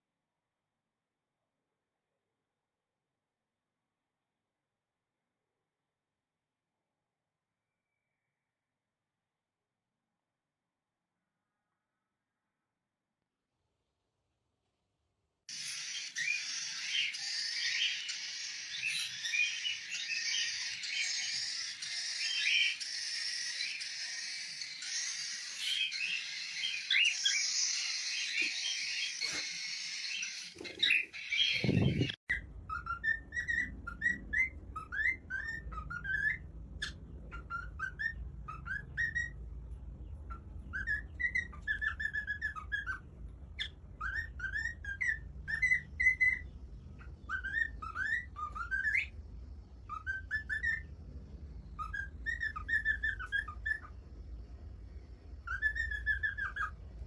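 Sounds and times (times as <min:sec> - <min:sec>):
parrot whistling chirps: 0:15.5 - 0:39.4, 0:47.2 - 0:49.1, 0:49.9 - 0:50.9, 0:51.8 - 0:54.0, 0:55.4 - 0:56.8.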